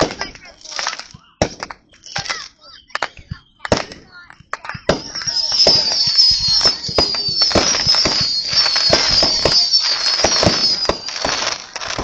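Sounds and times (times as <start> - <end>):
fireworks bangs and crackling: 0.0 - 12.0
high wavering whistle: 4.9 - 12.0.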